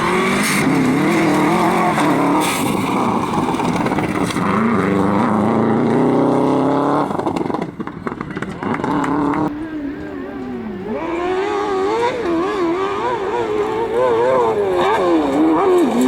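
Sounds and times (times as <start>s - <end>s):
engine crackling: 0.0s - 16.0s
racing engine revving: 0.0s - 16.0s.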